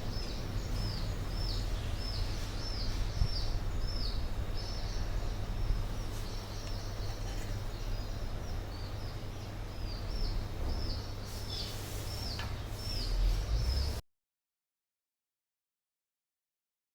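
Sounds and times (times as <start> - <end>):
steady low rumble: 0.0 - 11.1
bird chirping: 0.0 - 14.0.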